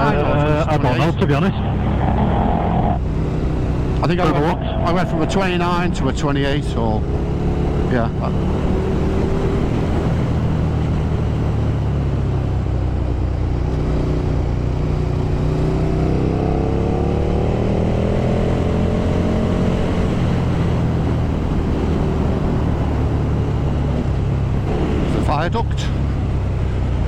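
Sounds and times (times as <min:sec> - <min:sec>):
motorcycle engine running: 0:00.0 - 0:27.0
wind and road noise: 0:00.0 - 0:27.0.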